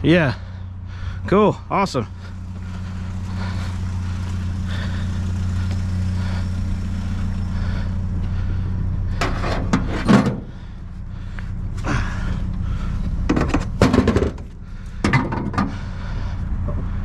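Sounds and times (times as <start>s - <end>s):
truck engine idling: 0.0s - 17.0s
short clunks: 9.1s - 10.8s, 12.0s - 16.0s.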